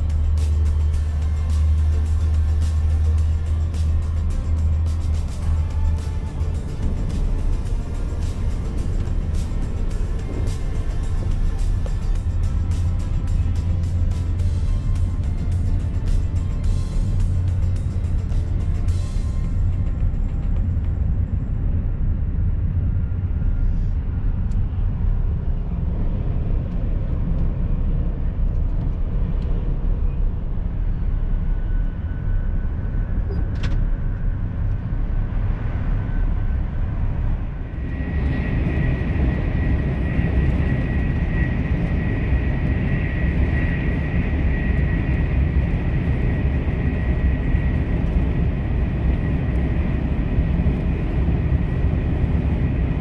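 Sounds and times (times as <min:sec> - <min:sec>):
high-pitched whine: 0:00.0 - 0:53.0
high-speed train rumble: 0:00.0 - 0:53.0.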